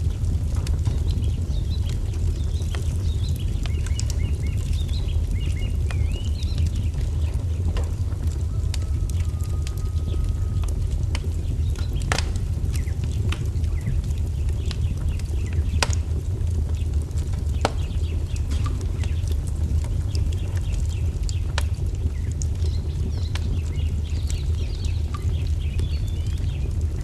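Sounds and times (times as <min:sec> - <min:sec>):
sharp fire pops: 0:00.0 - 0:27.0
small birds chirping: 0:00.0 - 0:27.0
wood fire crackling: 0:00.0 - 0:27.0.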